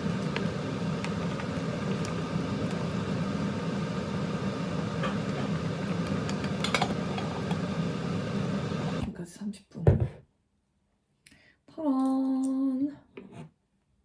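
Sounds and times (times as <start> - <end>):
low mechanical hum: 0.0 - 9.1.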